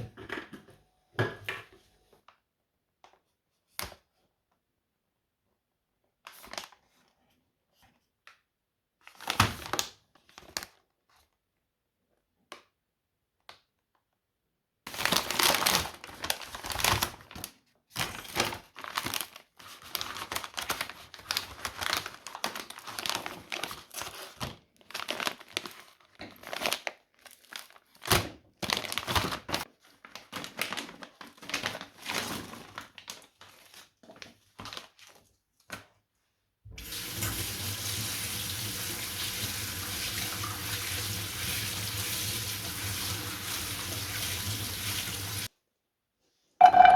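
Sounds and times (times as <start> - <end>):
crinkling and rustling by hand: 0.0 - 36.6.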